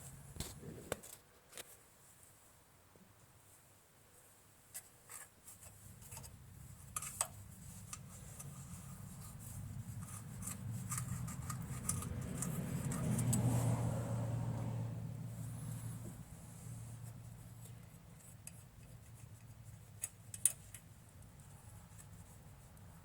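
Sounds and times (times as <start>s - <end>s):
low engine rumble: 6.4s - 18.2s
clicks and taps of parts handled: 20.0s - 21.4s.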